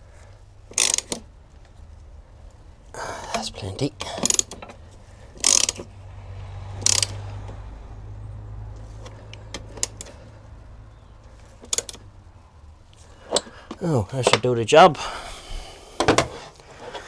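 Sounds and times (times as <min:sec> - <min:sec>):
socket ratchet clicking: 0:00.7 - 0:01.3, 0:03.3 - 0:05.9, 0:06.8 - 0:07.6, 0:09.0 - 0:10.2, 0:11.6 - 0:12.1
light metal clicks: 0:03.3 - 0:05.9, 0:06.8 - 0:07.7, 0:08.7 - 0:12.2, 0:12.8 - 0:14.5.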